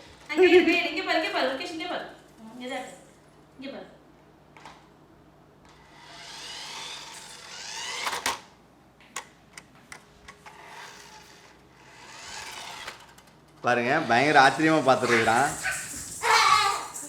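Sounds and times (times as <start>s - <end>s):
toy car motor whirring: 5.7s - 8.5s, 10.4s - 13.3s, 14.1s - 17.0s.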